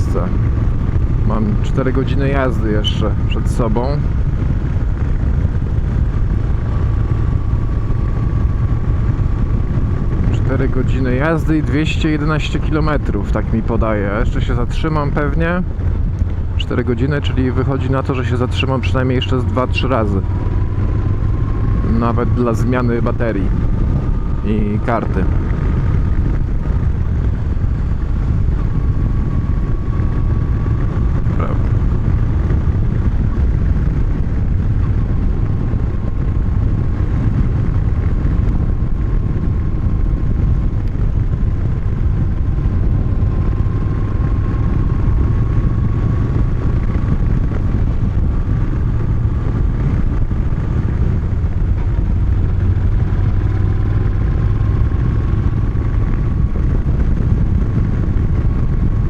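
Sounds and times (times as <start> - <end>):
motorcycle engine cruising: 0.0 - 59.0
road and wind noise: 0.0 - 59.0.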